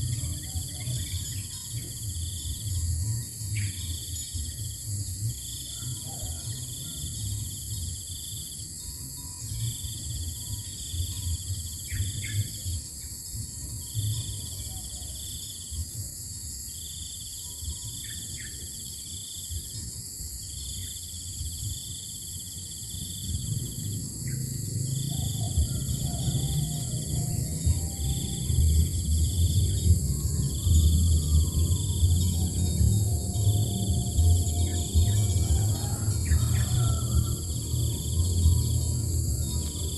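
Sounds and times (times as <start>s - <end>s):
cricket-like trill: 0.0s - 39.9s
high-pitched insect hum: 0.0s - 39.9s
low rumble: 23.1s - 39.9s.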